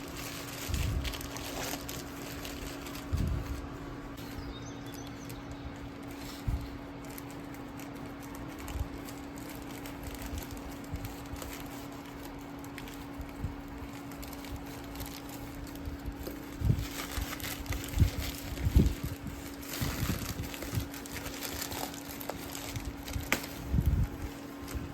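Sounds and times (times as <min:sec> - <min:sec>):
steady low hum: 0:00.0 - 0:24.9
package thumps and rustles: 0:16.2 - 0:24.8.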